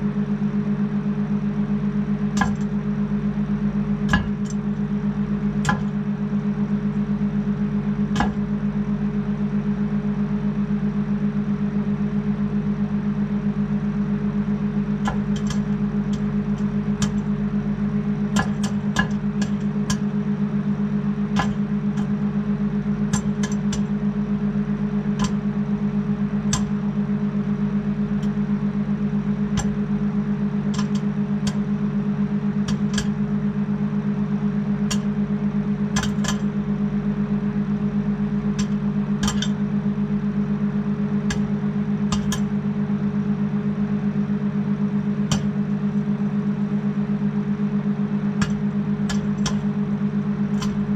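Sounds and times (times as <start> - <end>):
microwave oven humming: 0.0 - 50.9
popcorn kernels popping: 2.4 - 2.7, 4.1 - 4.6, 8.2 - 8.5, 15.0 - 17.4, 18.4 - 20.1, 21.4 - 22.2, 23.1 - 24.0, 25.2 - 25.5, 26.5 - 26.8, 29.5 - 29.9, 30.7 - 31.7, 32.7 - 33.2, 36.0 - 36.5, 38.6 - 39.6, 41.3 - 41.5, 42.1 - 42.5, 45.3 - 45.6, 48.4 - 49.7, 50.5 - 50.9.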